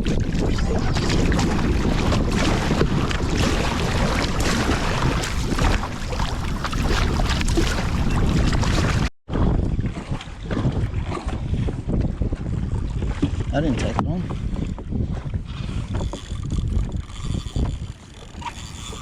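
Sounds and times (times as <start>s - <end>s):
water splashing against kayak hull: 0.0s - 19.0s
wind rumble on microphone: 0.0s - 19.0s.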